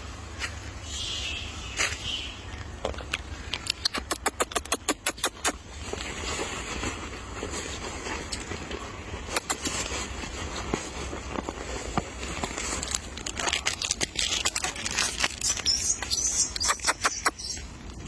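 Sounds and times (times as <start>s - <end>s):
clicks taps and crinkling: 2.5s - 6.1s, 10.6s - 18.0s
rustling bursts: 4.0s - 17.4s.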